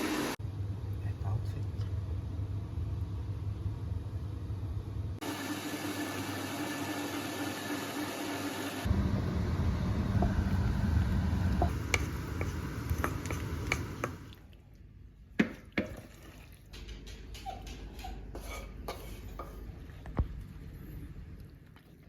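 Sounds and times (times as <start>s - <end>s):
low rumble: 8.9s - 13.0s.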